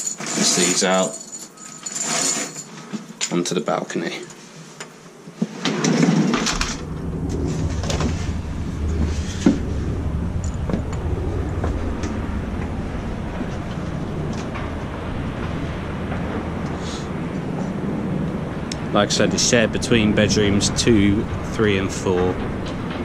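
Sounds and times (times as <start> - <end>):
low city rumble: 3.5 - 23.0
balcony door opening: 5.5 - 8.2.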